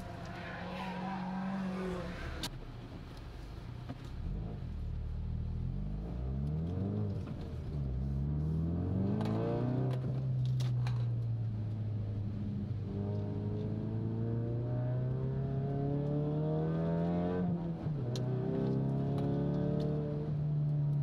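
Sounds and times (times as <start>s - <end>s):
car engine revving through gears: 0.0s - 2.5s, 5.4s - 10.6s, 12.7s - 20.4s.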